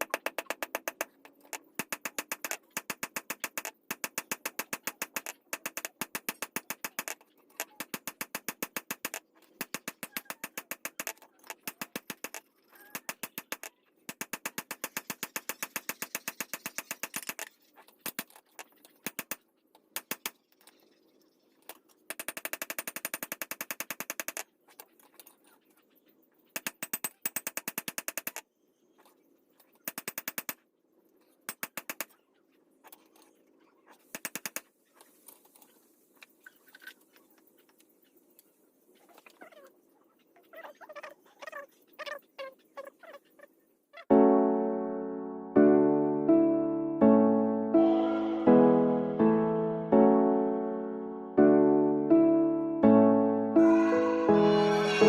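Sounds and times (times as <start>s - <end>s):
rapid sharp taps: 0.0s - 18.3s, 19.0s - 19.4s, 20.0s - 20.4s, 22.1s - 24.4s, 26.6s - 28.4s, 29.9s - 30.6s, 31.5s - 32.1s, 34.1s - 34.6s.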